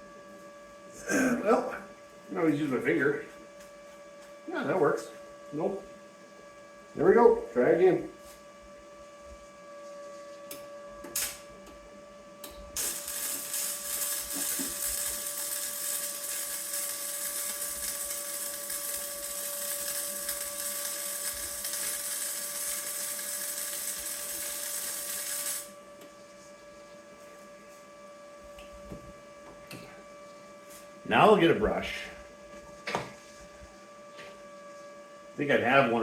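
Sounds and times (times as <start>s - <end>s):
machine hum: 0.0s - 36.0s
arc welder crackling hiss: 11.0s - 11.5s, 12.8s - 25.8s.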